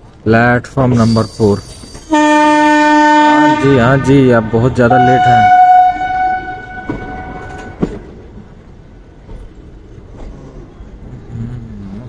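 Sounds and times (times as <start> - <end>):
train running rumble: 0.0 - 12.0
train horn: 2.1 - 8.0
train wheels clacking: 5.1 - 8.2.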